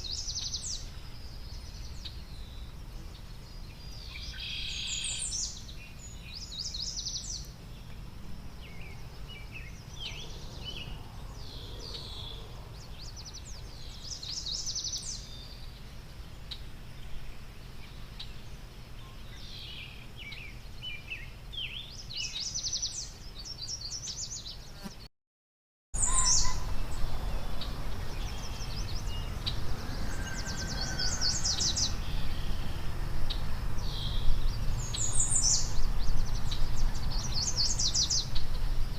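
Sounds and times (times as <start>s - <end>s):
small birds chirping: 0.0s - 25.1s, 26.0s - 38.9s
low outdoor rumble: 26.0s - 38.9s.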